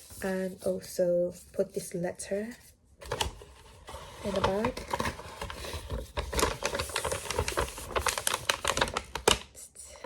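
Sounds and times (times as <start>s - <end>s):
paper bag rustling: 3.0s - 9.5s.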